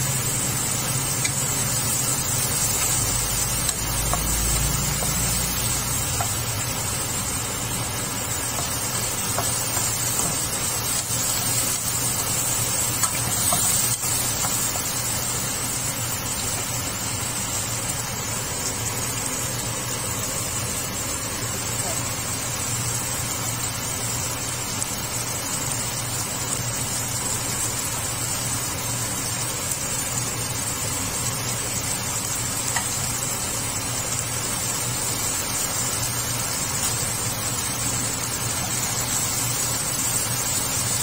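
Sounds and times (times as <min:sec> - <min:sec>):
steady low hum: 0:00.0 - 0:22.5
vegetables sizzling in oil: 0:00.0 - 0:41.0.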